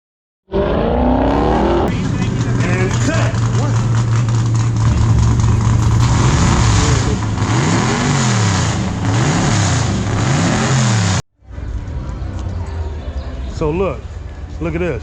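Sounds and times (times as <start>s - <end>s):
car engine idling and revving: 0.8s - 12.5s.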